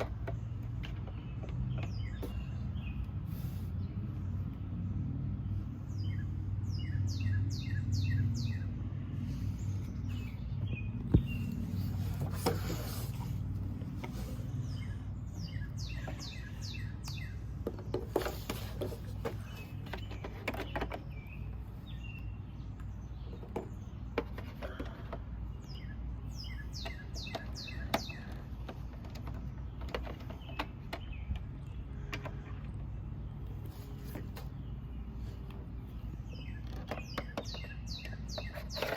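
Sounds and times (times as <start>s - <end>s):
bird chirping: 0.0s - 4.6s, 5.3s - 38.9s
small clicks and knocks: 15.8s - 21.6s, 22.8s - 25.5s, 26.7s - 34.6s, 36.4s - 38.9s.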